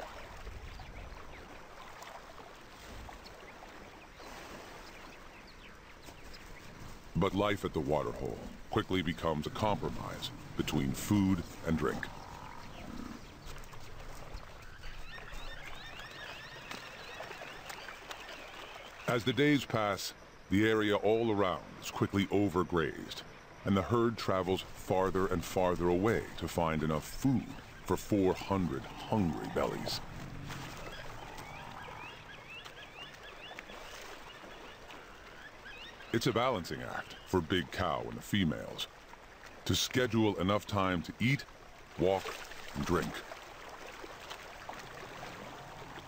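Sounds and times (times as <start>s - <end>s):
bird chirps: 8.1s - 19.5s, 26.1s - 37.4s.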